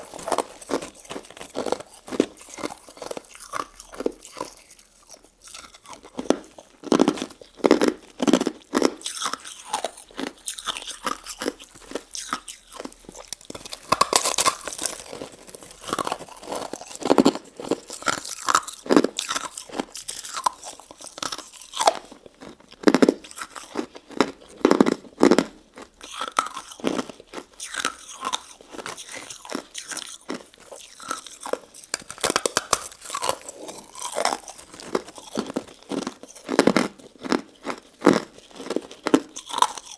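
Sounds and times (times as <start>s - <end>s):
crunching and chewing: 0.0s - 39.9s.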